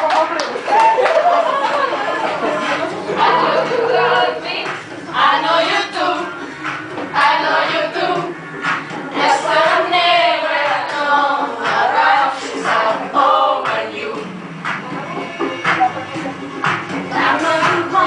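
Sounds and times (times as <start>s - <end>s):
backing music: 0.0s - 18.0s
women singing pop song: 2.2s - 8.4s, 9.1s - 14.4s, 17.0s - 18.0s.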